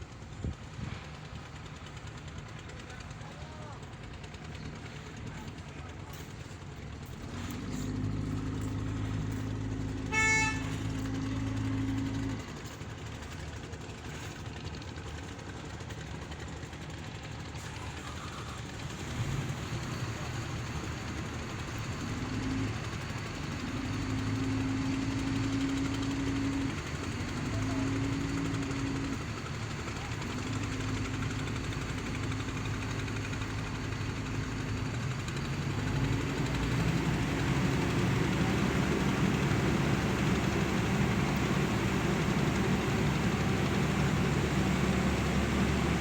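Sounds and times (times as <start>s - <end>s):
boat engines running: 0.0s - 46.0s
boat horn blasts: 9.8s - 12.3s.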